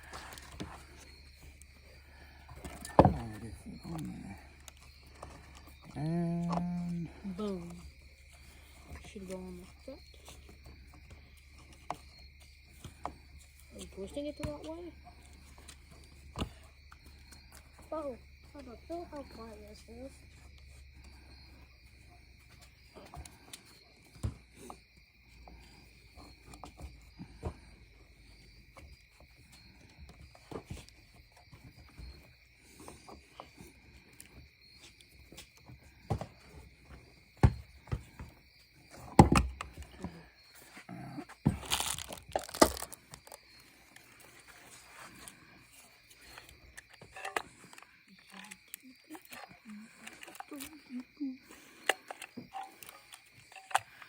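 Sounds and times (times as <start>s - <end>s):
plastic clatter: 2.5s - 6.7s, 41.4s - 43.4s
plastic parts clicking and rustling: 41.4s - 54.0s.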